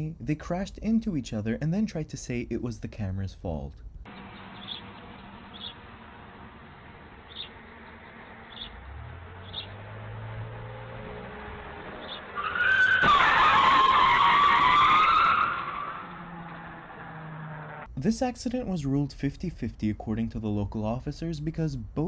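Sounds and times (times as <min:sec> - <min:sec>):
road noise: 0:03.8 - 0:18.4
low engine hum: 0:03.9 - 0:12.6
car tyres squealing: 0:04.1 - 0:17.9.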